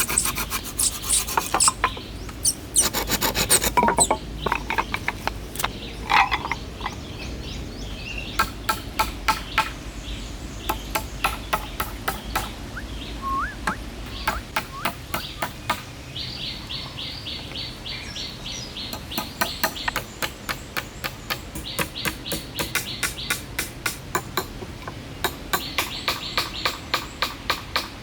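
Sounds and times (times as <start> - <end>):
birds calling: 0.0 - 23.6
rising whistle: 13.2 - 13.8
trilled chirps: 13.2 - 13.8.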